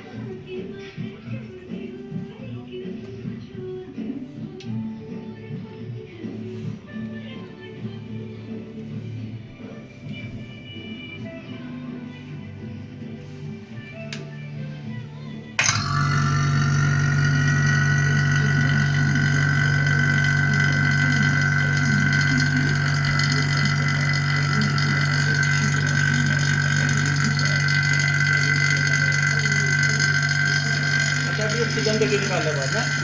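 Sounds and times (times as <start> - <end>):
electric motor humming and whining: 15.6 - 33.0.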